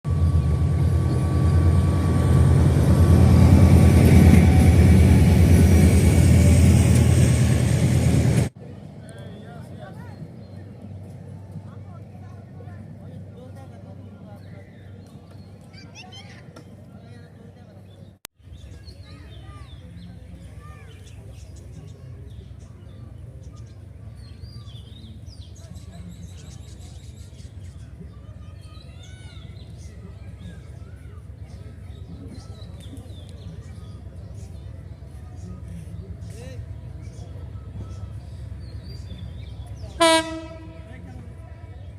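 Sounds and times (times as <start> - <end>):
train rumbling: 0.0 - 9.0, 33.9 - 41.9
birds chirping: 17.7 - 41.9.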